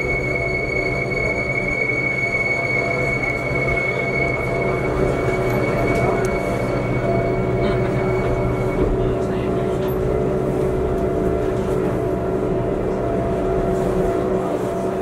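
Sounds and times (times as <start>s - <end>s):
high-pitched whine: 0.0s - 15.0s
train running gear rumble: 0.0s - 15.0s.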